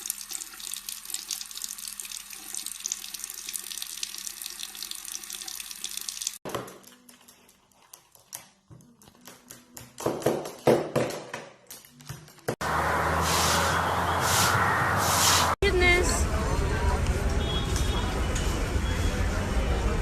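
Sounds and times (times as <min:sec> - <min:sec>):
tap water running into sink: 0:00.0 - 0:06.4.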